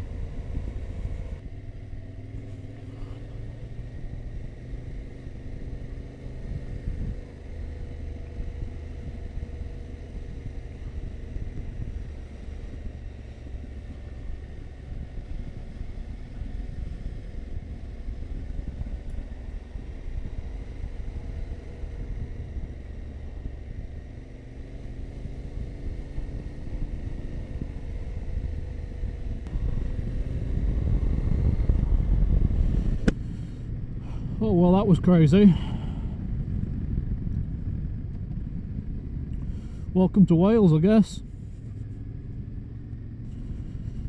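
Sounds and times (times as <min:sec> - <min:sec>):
motorcycle engine running: 0:00.0 - 0:44.0
wind and road noise: 0:00.0 - 0:44.0.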